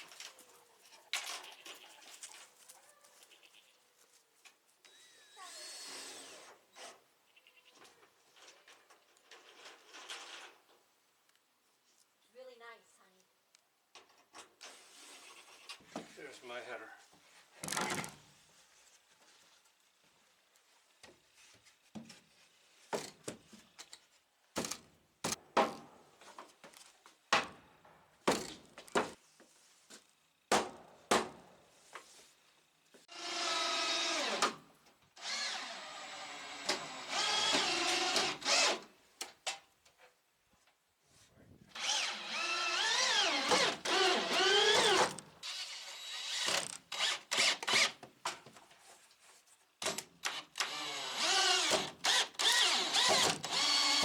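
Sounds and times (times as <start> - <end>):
power drill motor whine: 33.1 - 34.4, 35.2 - 38.8, 41.8 - 47.9, 50.6 - 54.0.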